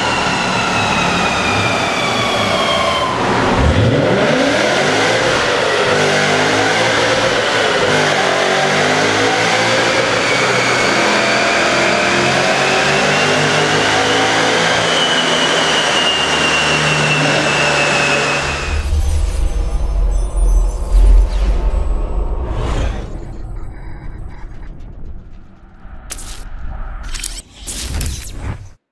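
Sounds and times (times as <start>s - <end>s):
car engine running hard: 0.0s - 18.8s
high whine rising in pitch: 0.0s - 28.6s.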